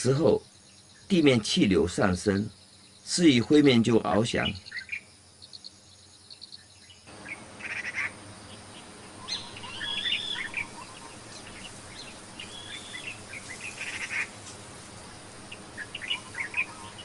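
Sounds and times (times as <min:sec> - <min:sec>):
birds chirping: 0:00.0 - 0:17.0
outdoor background noise: 0:00.0 - 0:17.0
bird whistled calls: 0:09.1 - 0:14.3, 0:15.5 - 0:17.0.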